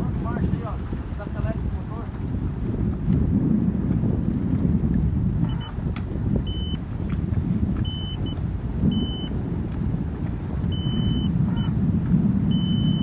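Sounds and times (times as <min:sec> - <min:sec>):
boat engine running: 0:00.0 - 0:13.0
wind noise on microphone: 0:00.0 - 0:13.0
short high-pitched beeps: 0:06.5 - 0:06.8, 0:07.8 - 0:09.3, 0:10.7 - 0:11.7, 0:12.5 - 0:13.0.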